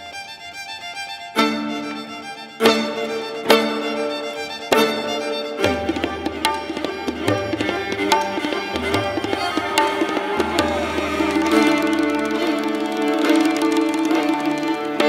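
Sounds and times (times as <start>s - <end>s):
bowed strings sustained notes: 0.0s - 15.0s
tabla drum strokes: 2.6s - 15.0s.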